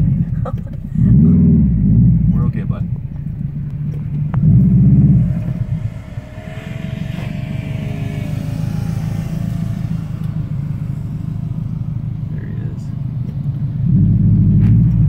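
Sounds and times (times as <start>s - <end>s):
car engine rumbling: 0.0s - 15.0s
faint wavering whine: 3.0s - 14.5s.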